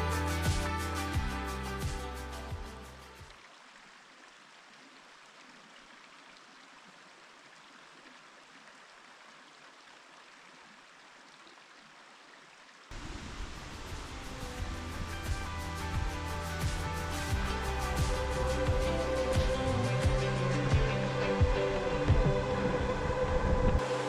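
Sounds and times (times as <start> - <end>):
music: 0.0 - 3.3, 13.5 - 24.0
creek water rushing: 0.0 - 24.0.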